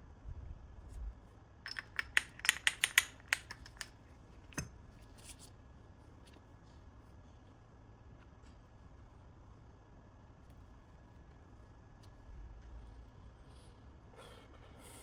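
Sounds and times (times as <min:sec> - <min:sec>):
sharp clicks: 0:01.7 - 0:03.9.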